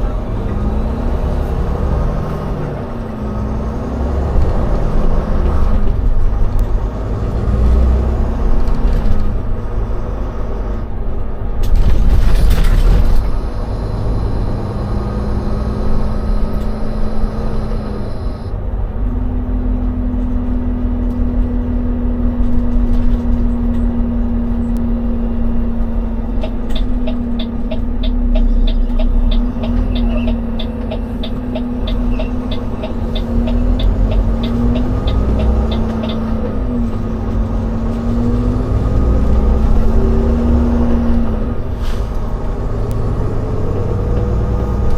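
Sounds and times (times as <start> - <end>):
diesel engine running: 0.0 - 44.9
regular ticking: 26.3 - 36.6.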